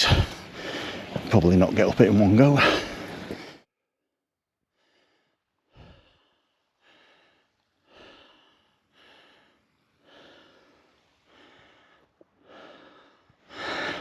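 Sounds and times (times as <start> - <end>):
person breathing hard: 0.0 - 1.2, 4.7 - 14.0.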